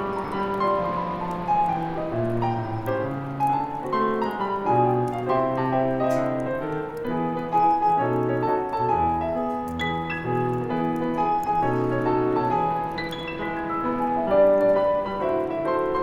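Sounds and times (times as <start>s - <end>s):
gentle solo piano music: 0.0s - 16.0s
wood fire crackling: 0.0s - 16.0s.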